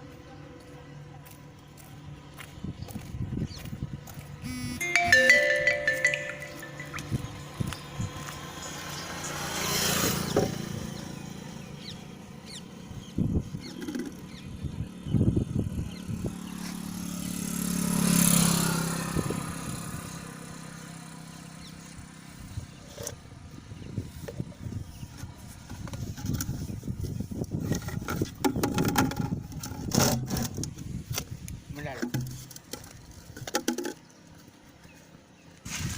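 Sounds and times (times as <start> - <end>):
vehicles passing by: 0.0 - 26.1.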